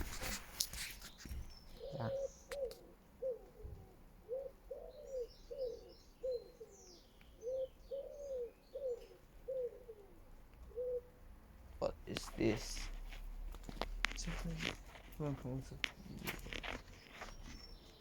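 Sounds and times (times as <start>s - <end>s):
bird calling low notes: 1.4s - 11.2s.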